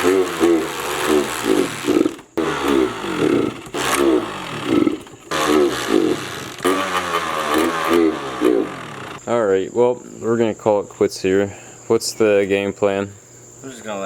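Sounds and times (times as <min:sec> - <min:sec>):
dirt bike engine sputtering: 0:00.0 - 0:09.2.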